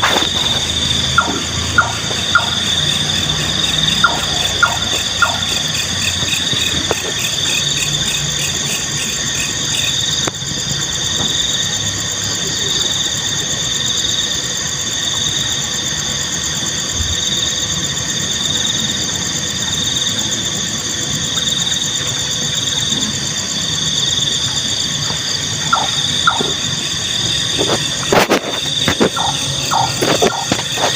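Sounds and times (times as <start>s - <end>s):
crickets and night insects chirping: 0.0s - 30.9s
nightjar calls: 0.4s - 6.2s, 25.6s - 26.7s, 29.1s - 30.9s.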